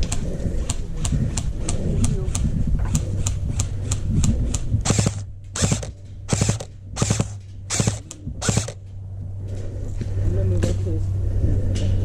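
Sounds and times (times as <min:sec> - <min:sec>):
airsoft gun firing: 0:04.6 - 0:08.8.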